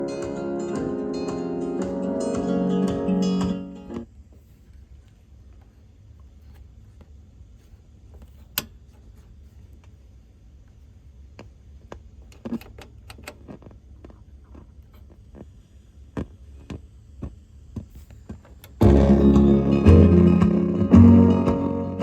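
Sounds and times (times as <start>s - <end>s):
steady low hum: 13.6s - 22.0s.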